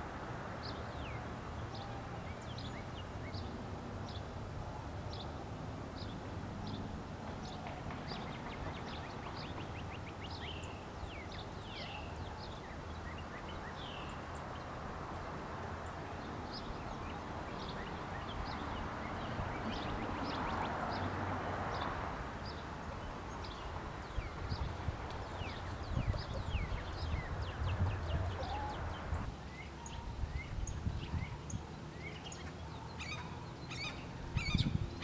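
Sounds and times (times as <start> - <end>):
wild birds calling: 23.4 - 31.4.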